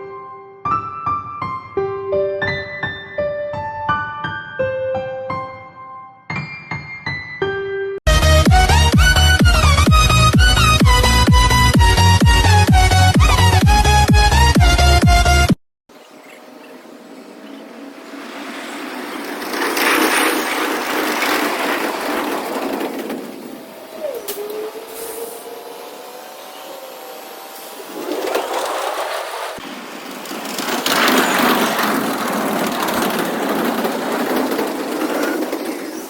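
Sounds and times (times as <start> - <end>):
train wheels on rails: 17.7 - 36.0.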